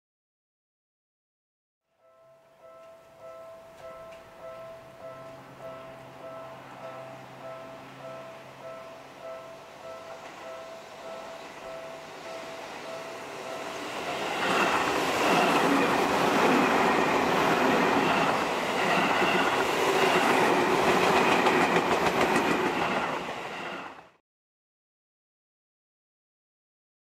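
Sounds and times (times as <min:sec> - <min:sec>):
train wheels clattering: 0:11.5 - 0:23.6.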